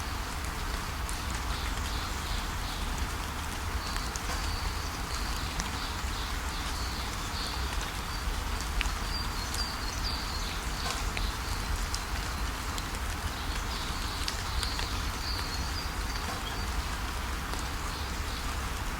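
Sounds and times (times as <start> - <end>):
steady rain: 0.0 - 18.9
sharp drip ticks: 8.6 - 16.6.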